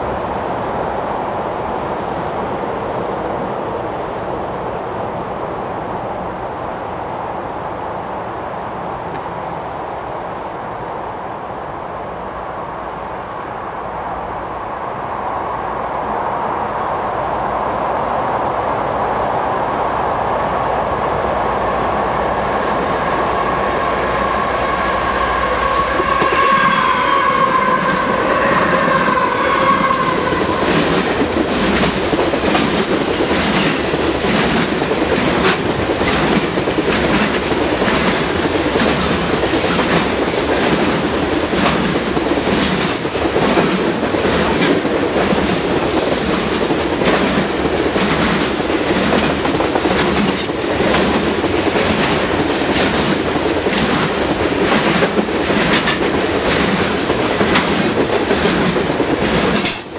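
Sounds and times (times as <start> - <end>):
diesel locomotive passing: 0.0 - 59.9
drawn-out high tone: 22.7 - 31.1
train wheels clicking over rail joints: 25.2 - 59.9.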